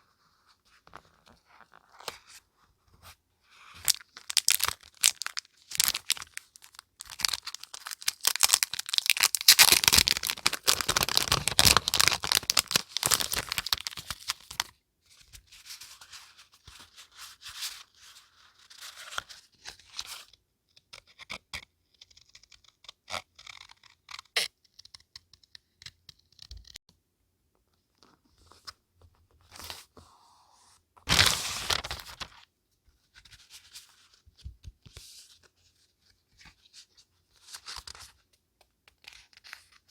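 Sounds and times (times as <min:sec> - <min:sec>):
paper tearing and crinkling: 0:07.0 - 0:14.6, 0:31.1 - 0:32.4
paper rustling: 0:31.1 - 0:32.4.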